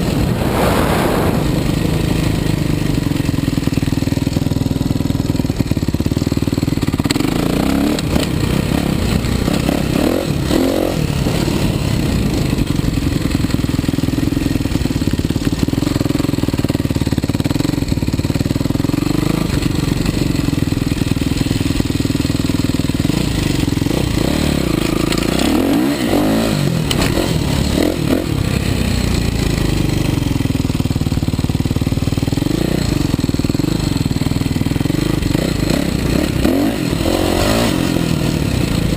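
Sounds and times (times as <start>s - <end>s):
motocross bike engine revving: 0.0s - 5.3s, 6.7s - 13.4s, 23.0s - 30.1s, 34.8s - 38.9s.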